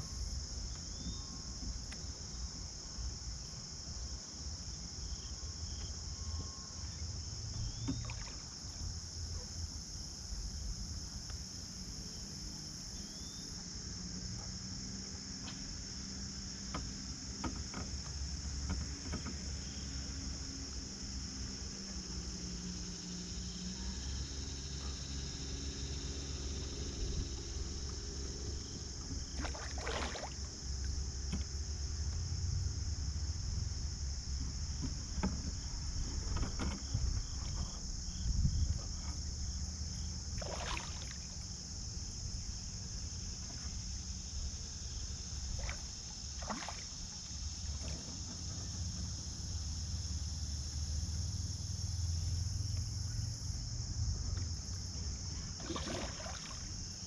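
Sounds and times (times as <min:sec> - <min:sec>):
water and kayak hull: 0:00.0 - 0:51.2, 0:52.1 - 0:57.0
insects droning: 0:00.0 - 0:57.0
splashes and knocks: 0:07.8 - 0:08.6, 0:29.0 - 0:31.6, 0:40.3 - 0:41.4, 0:45.5 - 0:48.7, 0:55.4 - 0:56.8.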